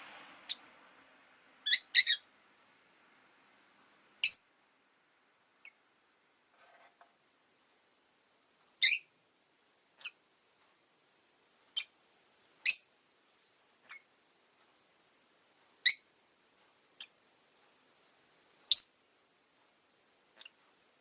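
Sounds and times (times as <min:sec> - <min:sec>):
lovebirds chirping: 0:01.6 - 0:02.3, 0:04.2 - 0:04.6, 0:05.6 - 0:05.8, 0:08.8 - 0:09.1, 0:10.0 - 0:10.2, 0:11.7 - 0:12.0, 0:12.6 - 0:12.9, 0:13.8 - 0:14.1, 0:15.8 - 0:16.1, 0:18.7 - 0:19.0.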